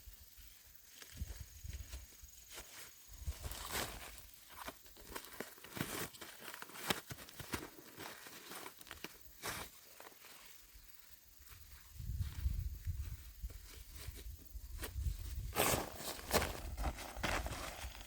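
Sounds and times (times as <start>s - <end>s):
dry corn leaves rustling: 1.0s - 10.5s, 13.1s - 18.0s.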